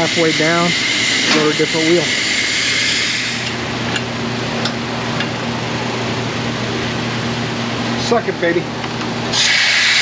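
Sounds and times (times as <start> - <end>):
vacuum brake bleeder hissing: 0.0 - 3.6, 9.3 - 10.0.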